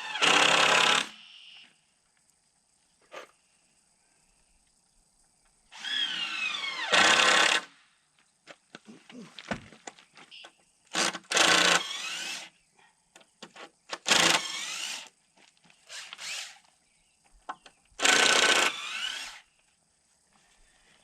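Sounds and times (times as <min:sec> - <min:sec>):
power drill running: 0:00.0 - 0:01.2, 0:05.8 - 0:07.7, 0:10.9 - 0:12.5, 0:14.0 - 0:15.1, 0:15.9 - 0:16.6, 0:18.0 - 0:19.4.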